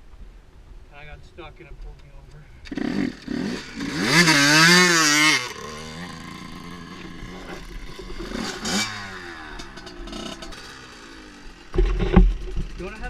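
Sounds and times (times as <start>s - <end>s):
dirt bike engine revving and idling: 2.6s - 13.0s.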